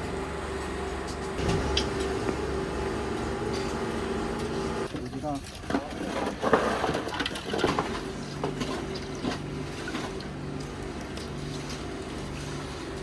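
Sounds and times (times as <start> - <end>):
small engine humming: 0.0 - 4.9
clattering and knocking: 1.2 - 4.6.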